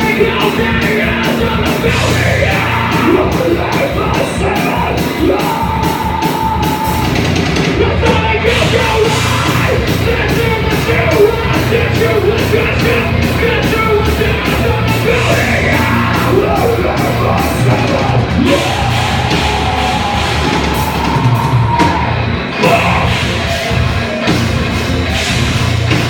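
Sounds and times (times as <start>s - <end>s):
heavy rock band playing: 0.0s - 26.0s
shouted vocals: 7.8s - 24.4s.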